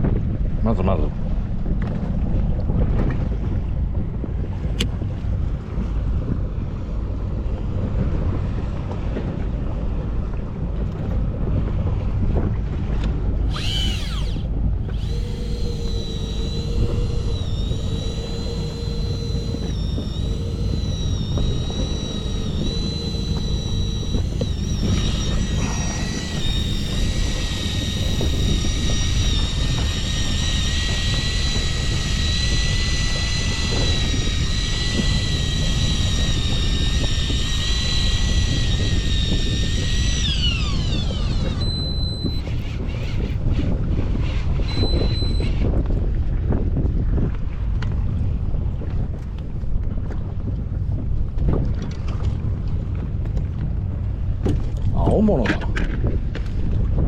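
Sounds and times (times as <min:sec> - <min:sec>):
outboard motor running: 0:01.7 - 0:46.4
high whine: 0:13.5 - 0:43.4, 0:44.6 - 0:45.6.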